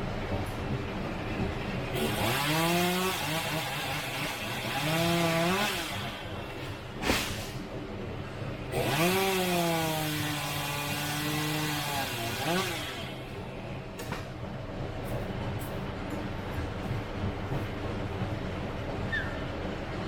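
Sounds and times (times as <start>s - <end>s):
chainsaw revving: 2.0s - 7.5s, 8.7s - 13.3s.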